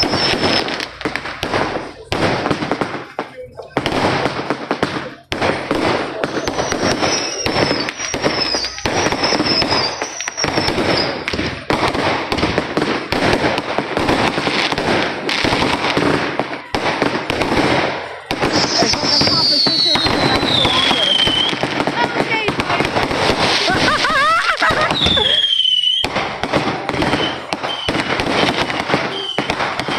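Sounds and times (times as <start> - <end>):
fireworks crackling and banging: 0.0 - 29.9.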